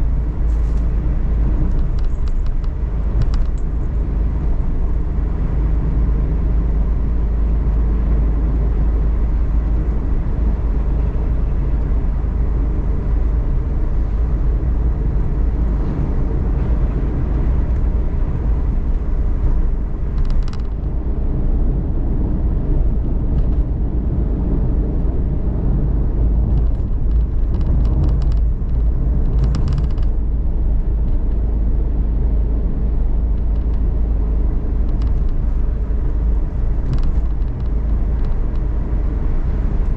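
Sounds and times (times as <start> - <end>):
engine and road rumble: 0.0 - 39.9
brief crackly sounds: 20.1 - 20.9, 26.4 - 30.2, 34.8 - 38.7.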